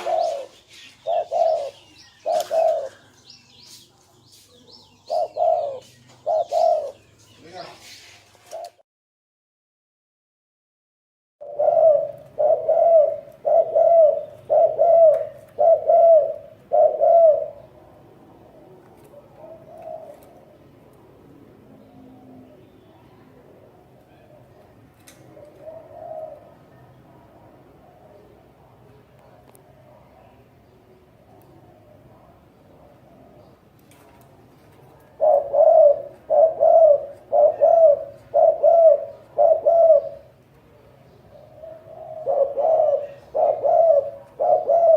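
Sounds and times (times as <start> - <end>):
dove cooing: 0.0 - 3.8, 4.6 - 7.1, 8.4 - 8.8, 11.4 - 20.8, 23.6 - 26.9, 34.6 - 44.9.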